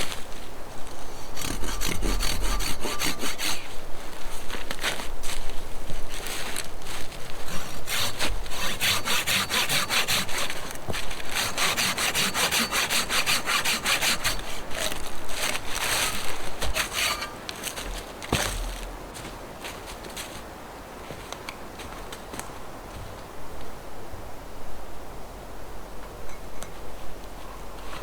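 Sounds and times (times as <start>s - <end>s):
hand saw cutting wood: 1.2s - 3.8s, 7.1s - 18.8s.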